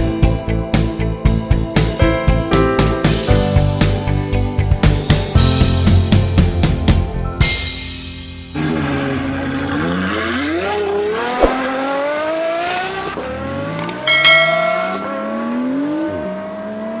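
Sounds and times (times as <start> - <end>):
car engine accelerating through gears: 8.6 - 14.1, 15.2 - 17.0.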